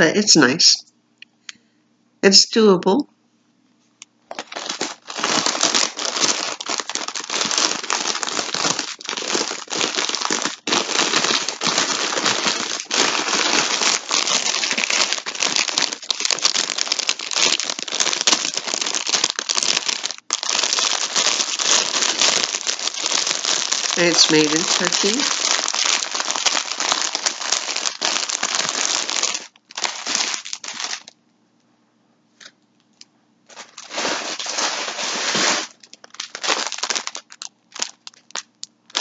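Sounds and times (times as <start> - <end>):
plastic packaging crinkling: 4.3 - 31.2, 33.5 - 39.0.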